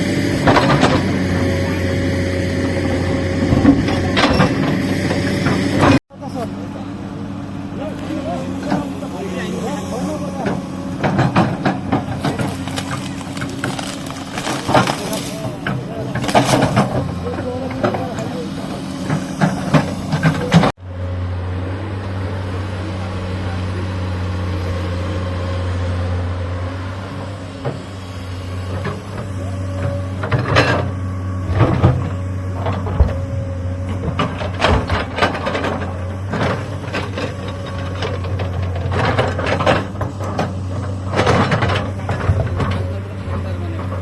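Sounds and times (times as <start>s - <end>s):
excavator diesel engine running: 0.0s - 44.0s
bucket knocking and scraping rock: 11.2s - 17.2s.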